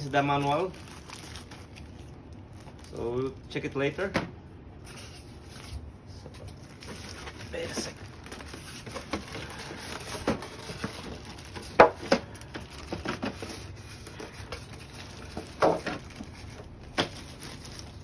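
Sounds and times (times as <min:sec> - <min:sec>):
cardboard rustling: 0:04.9 - 0:18.0.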